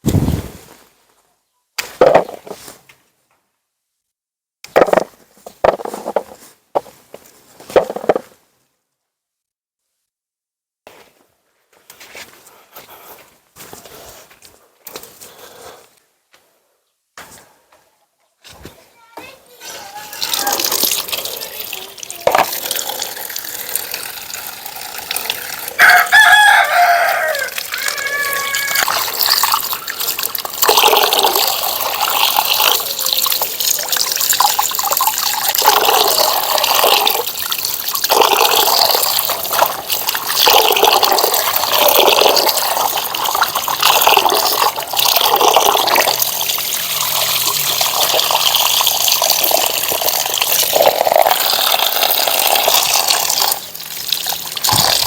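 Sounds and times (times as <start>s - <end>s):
water running and splashing: 19.6s - 55.0s
rooster crowing: 25.7s - 29.0s.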